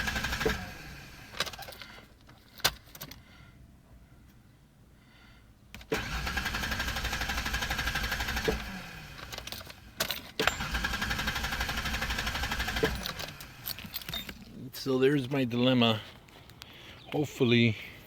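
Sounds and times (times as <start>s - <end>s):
engine cranking on starter: 0.0s - 2.0s, 5.8s - 14.4s.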